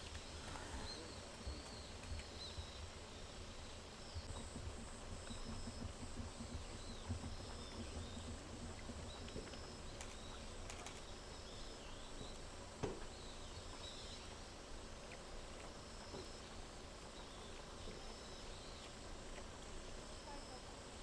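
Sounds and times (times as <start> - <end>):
small birds chirping: 0.0 - 19.5.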